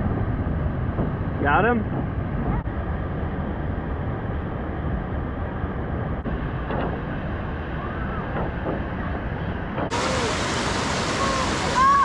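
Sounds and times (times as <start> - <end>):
rushing river water: 9.8 - 12.0.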